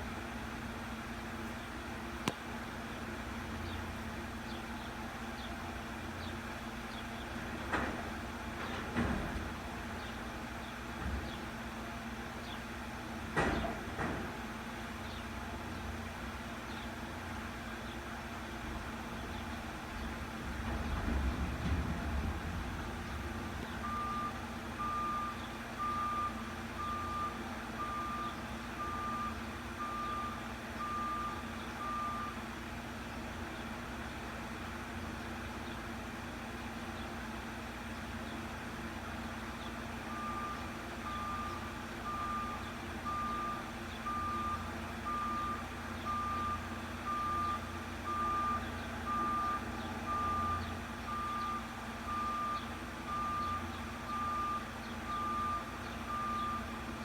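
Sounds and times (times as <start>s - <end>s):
truck engine running: 0.0s - 57.0s
truck reversing alarm beeping: 20.6s - 32.6s, 40.0s - 57.0s.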